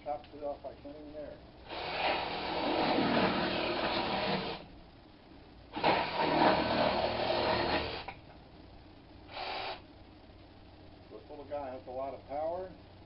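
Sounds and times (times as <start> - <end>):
jigsaw cutting wood: 1.7 - 4.6, 5.8 - 8.1.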